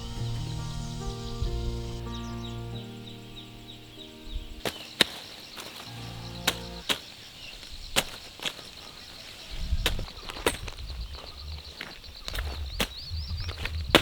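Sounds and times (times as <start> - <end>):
high insect-like pulsing trill: 0.0 - 6.8, 10.6 - 14.0
soft sustained music tones: 0.0 - 6.9
sharp chopping strikes: 4.6 - 7.0.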